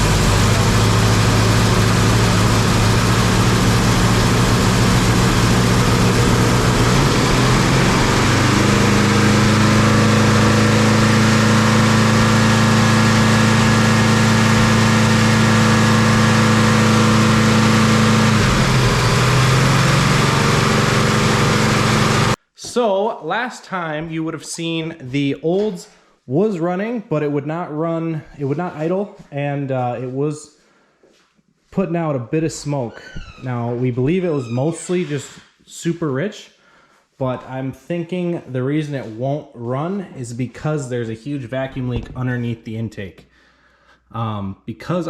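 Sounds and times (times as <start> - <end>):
loud car engine running: 0.0 - 22.4.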